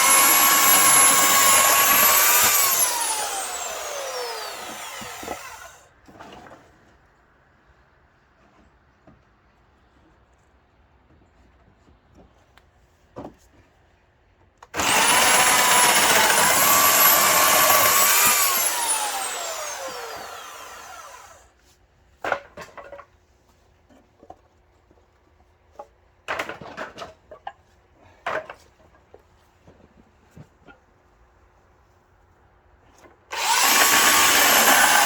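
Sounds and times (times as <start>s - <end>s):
electric saw motor: 0.0s - 5.8s, 14.8s - 21.4s, 33.3s - 35.0s.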